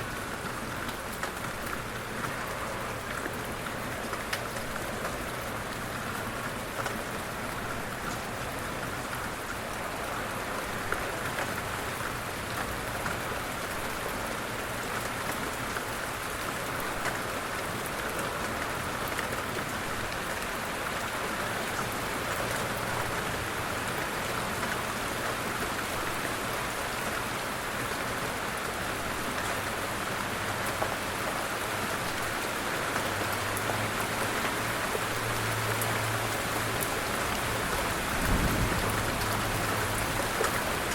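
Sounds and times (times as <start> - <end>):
light rain pattering: 0.0 - 40.9
raindrops ticking: 0.4 - 10.0.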